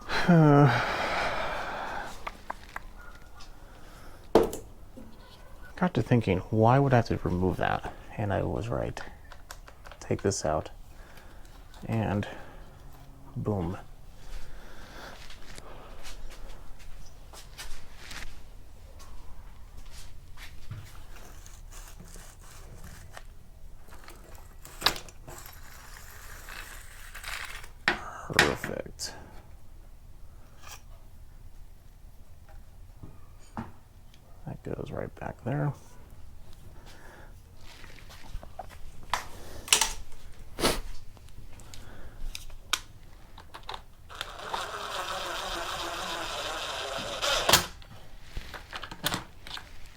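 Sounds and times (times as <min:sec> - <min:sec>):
tools handled on a bench: 0:37.8 - 0:40.4.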